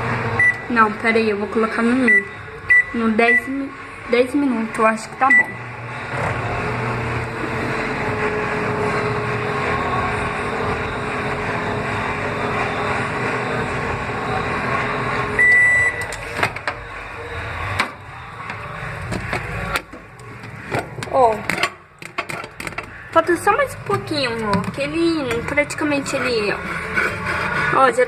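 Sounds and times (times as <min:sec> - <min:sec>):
microwave oven humming: 0:00.0 - 0:26.0
high beep: 0:15.4 - 0:16.0.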